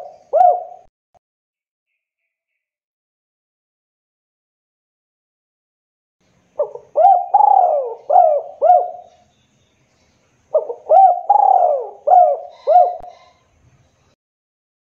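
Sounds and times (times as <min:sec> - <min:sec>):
dove cooing: 0:00.0 - 0:00.9, 0:06.6 - 0:09.2, 0:10.5 - 0:13.4.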